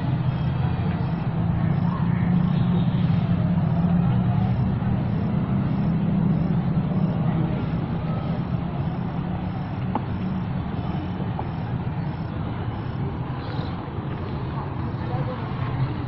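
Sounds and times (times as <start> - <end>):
engine rumbling: 0.0 - 16.0
outdoor background noise: 0.0 - 16.0.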